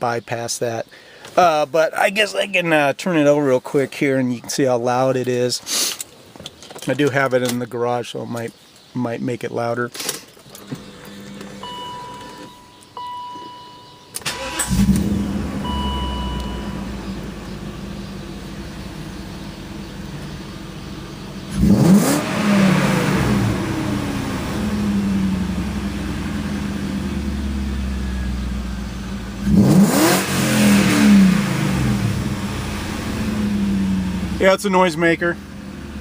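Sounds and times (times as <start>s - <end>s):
car engine cranking: 10.0s - 36.0s
car engine idling and revving: 10.5s - 36.0s.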